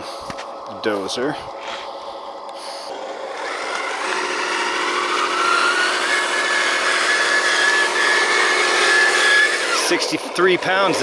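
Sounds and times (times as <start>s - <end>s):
toy dozer mechanical whine: 2.9s - 11.0s.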